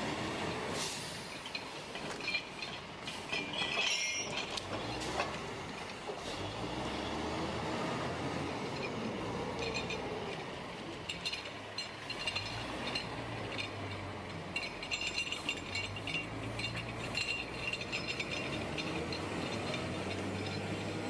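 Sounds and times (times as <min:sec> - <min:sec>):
metallic clinks and rattles: 0:01.3 - 0:06.0, 0:09.6 - 0:10.2, 0:10.9 - 0:21.0.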